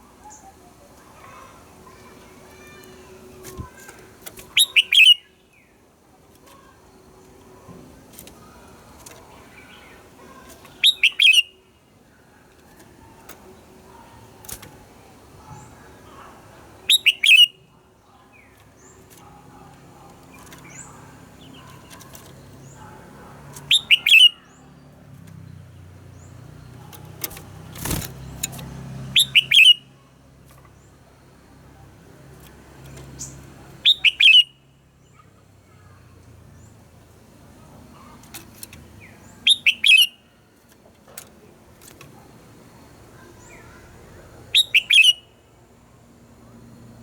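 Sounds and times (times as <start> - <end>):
faint bird chirps: 0.1 - 5.8, 8.4 - 14.8, 15.4 - 28.5, 29.1 - 30.9, 32.9 - 36.7, 37.6 - 40.4, 43.1 - 45.5.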